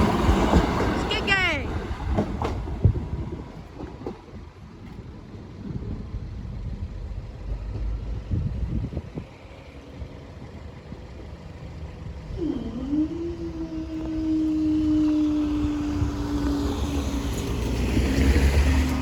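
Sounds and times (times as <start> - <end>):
vehicles passing: 0.0 - 19.0
engine note rising: 11.6 - 19.0.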